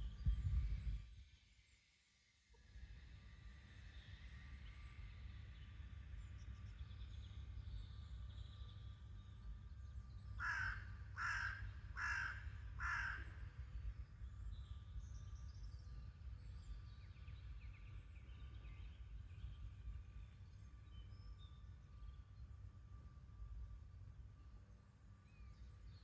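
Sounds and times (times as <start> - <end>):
harsh bird calls: 10.4 - 13.4.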